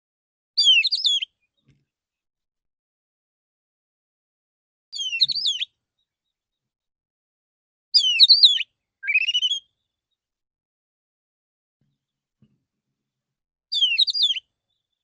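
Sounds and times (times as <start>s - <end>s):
bird singing whistled phrases: 0.6s - 1.4s, 4.9s - 5.7s, 8.0s - 9.8s, 13.7s - 14.5s.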